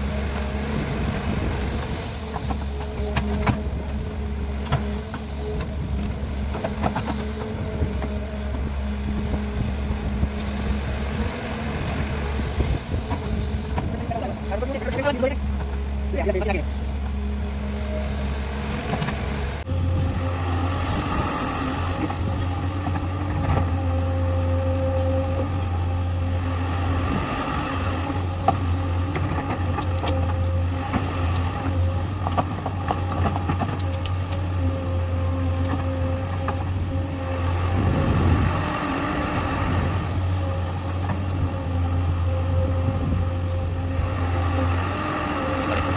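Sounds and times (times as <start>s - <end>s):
high whine: 0.0s - 32.1s
diesel engine droning: 0.0s - 45.9s.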